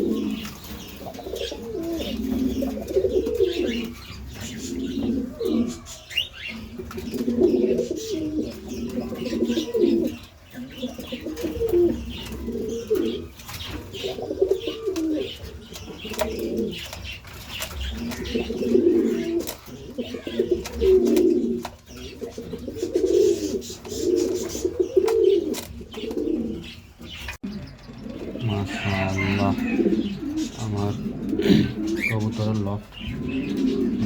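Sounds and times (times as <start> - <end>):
pigeons cooing: 0.0 - 34.0.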